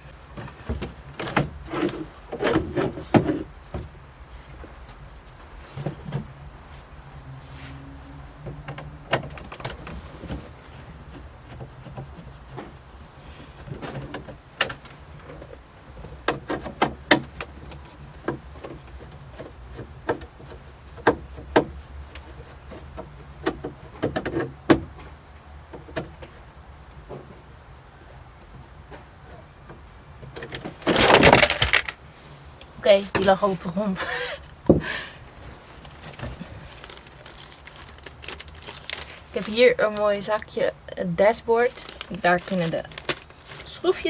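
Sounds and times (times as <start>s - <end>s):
car trim parts rattling: 0.0s - 44.0s.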